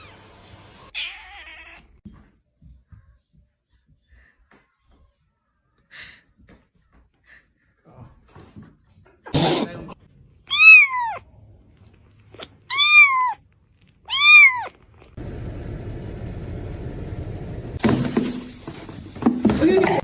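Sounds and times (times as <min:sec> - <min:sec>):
cat meowing: 0:00.8 - 0:02.0, 0:10.5 - 0:11.2, 0:12.4 - 0:13.4, 0:14.1 - 0:15.2.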